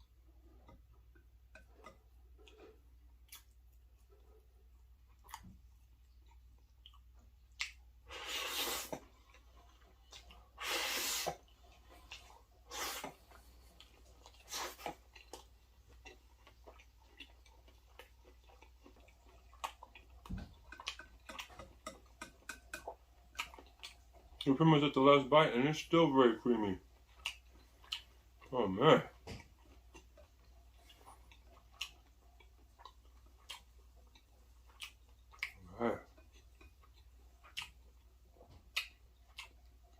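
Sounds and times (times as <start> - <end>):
wet slurps: 8.1 - 9.1, 12.2 - 13.4, 14.4 - 15.0
smacking chewing clicks: 11.4 - 24.6, 26.8 - 39.9.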